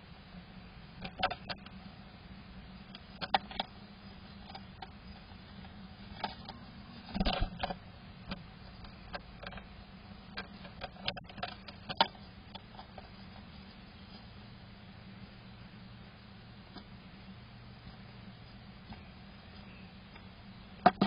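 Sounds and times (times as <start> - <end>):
bird tapping and scraping on wood: 10.3 - 13.5.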